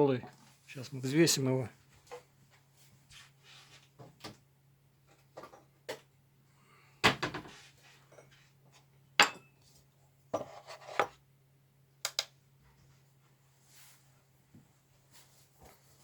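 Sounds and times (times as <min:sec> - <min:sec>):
knife knocks and metal clinks: 0:09.2 - 0:09.6.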